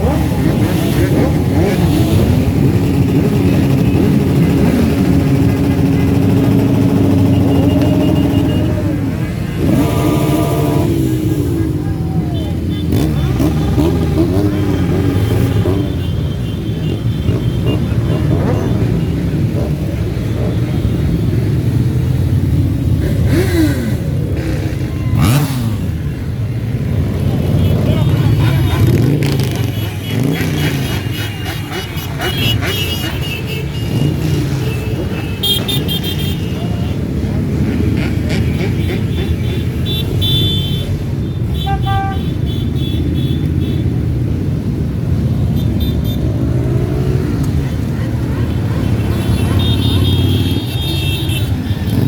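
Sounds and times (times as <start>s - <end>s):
motorcycle engine revving: 0.0s - 16.2s, 17.0s - 36.1s, 43.8s - 52.0s
motorcycles rumbling past: 0.0s - 16.2s, 16.9s - 36.2s, 37.1s - 39.9s, 46.2s - 52.0s
low horn tooting: 5.8s - 18.6s, 39.6s - 42.5s.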